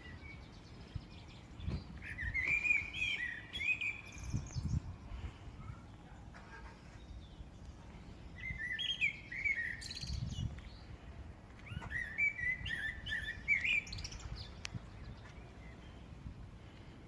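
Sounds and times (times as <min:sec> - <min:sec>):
blackbird singing: 0:00.0 - 0:04.9, 0:06.9 - 0:10.9, 0:11.6 - 0:16.0.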